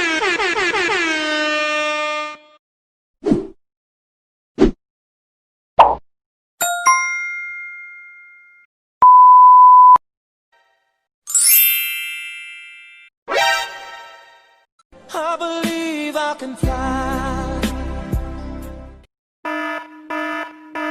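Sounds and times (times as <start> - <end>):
rising sparkle of chiming tones: 6.6 - 8.4, 11.3 - 13.1
two-note chime: 6.6 - 8.6, 11.3 - 13.1
steady one-pitch beep: 9.0 - 10.0.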